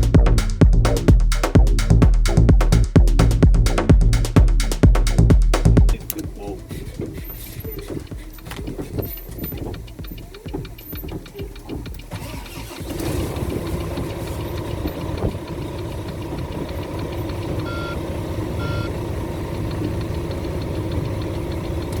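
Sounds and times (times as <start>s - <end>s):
diesel engine cranking and idling: 0.0s - 22.0s
short dashboard beeps: 7.7s - 19.0s.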